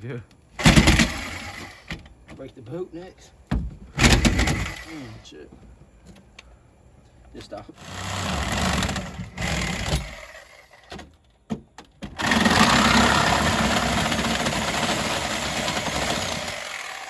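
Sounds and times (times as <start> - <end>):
power saw cutting: 0.6 - 1.9, 4.0 - 5.3, 7.8 - 10.9, 12.2 - 17.0.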